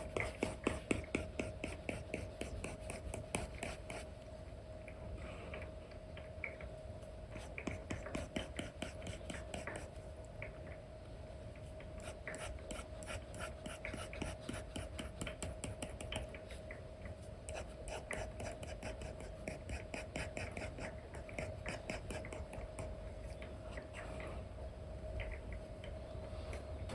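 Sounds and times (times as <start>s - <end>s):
stylus tapping and scratching screen: 0.0s - 4.1s, 7.4s - 9.9s, 12.2s - 16.5s, 17.5s - 22.9s
faint steady hum: 0.0s - 26.9s.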